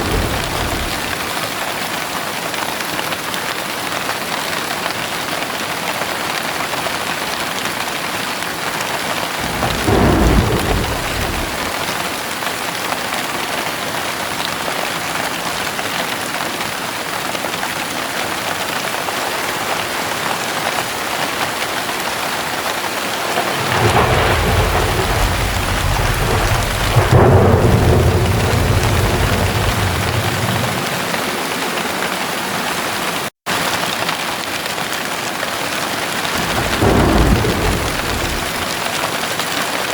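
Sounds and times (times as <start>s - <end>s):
thunder rumbling: 0.0s - 1.6s, 9.3s - 12.3s, 22.7s - 32.5s, 36.2s - 39.2s
heavy rain falling: 0.0s - 39.9s.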